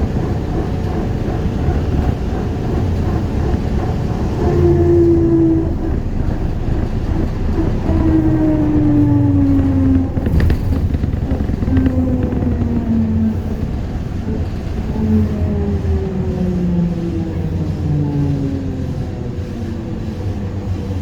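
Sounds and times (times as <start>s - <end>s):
trolleybus ride rumble: 0.0s - 21.0s
electric motor whine: 5.0s - 16.0s.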